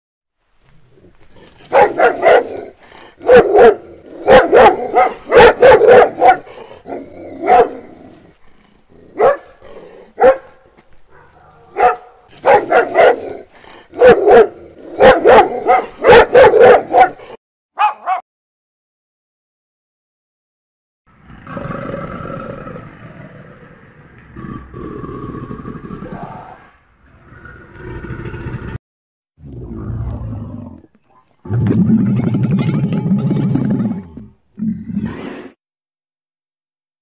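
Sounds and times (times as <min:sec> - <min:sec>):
dog barking: 0:01.7 - 0:07.9, 0:09.2 - 0:09.6, 0:10.2 - 0:18.2, 0:31.1 - 0:31.4.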